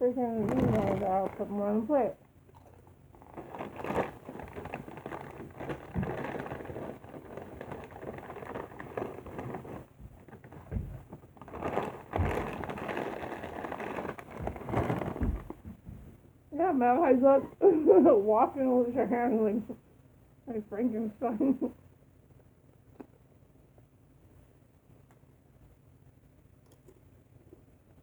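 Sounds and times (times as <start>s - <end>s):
chips crunching being chewed: 2.5s - 9.8s.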